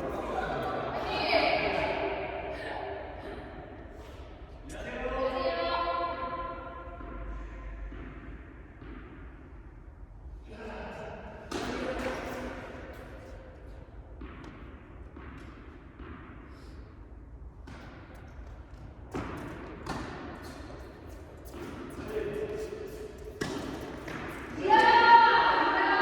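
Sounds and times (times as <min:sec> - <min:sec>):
tennis ball bouncing on court: 0:06.6 - 0:09.9, 0:11.4 - 0:25.8
tennis ball struck by rackets: 0:07.8 - 0:09.7, 0:11.5 - 0:22.1, 0:22.9 - 0:25.4.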